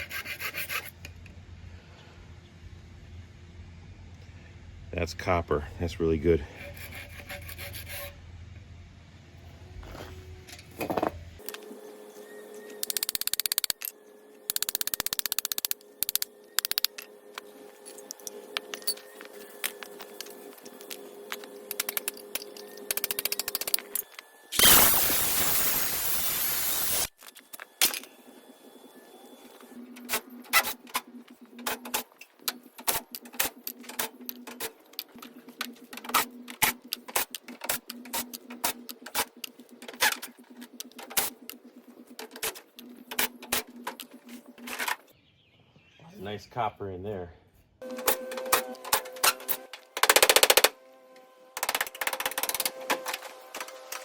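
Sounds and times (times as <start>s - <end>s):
low hum: 0.8s - 26.1s.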